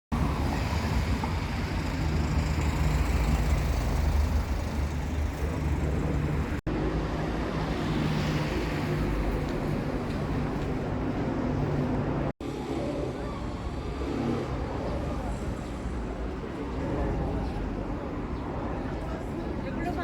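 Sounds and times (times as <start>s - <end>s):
road traffic rumble: 0.1s - 20.0s.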